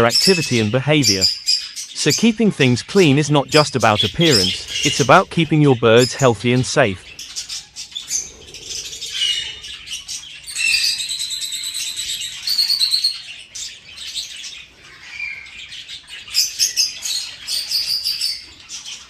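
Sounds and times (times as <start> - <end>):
budgies chirping and chattering: 0.0 - 19.0.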